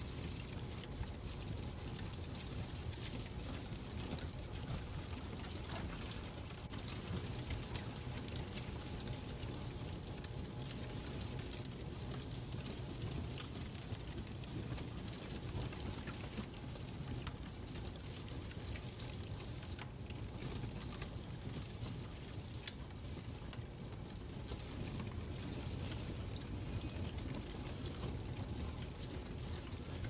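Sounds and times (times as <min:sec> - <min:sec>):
fireplace crackling: 0:00.0 - 0:30.0.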